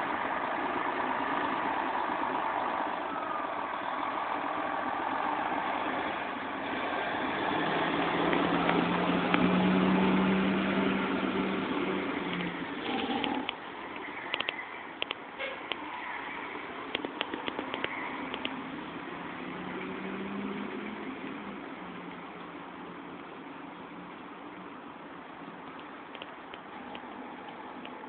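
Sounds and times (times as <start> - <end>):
fire truck engine running: 0.0 - 15.8.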